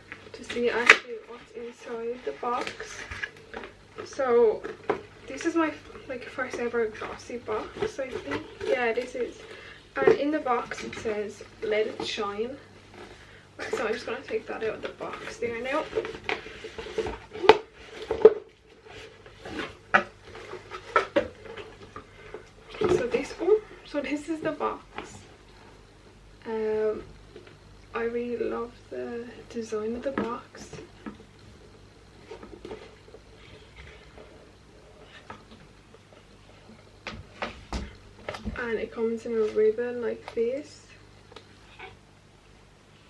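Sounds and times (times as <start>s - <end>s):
packaging rustling: 0.0s - 23.6s
faint low room hum: 0.0s - 43.0s.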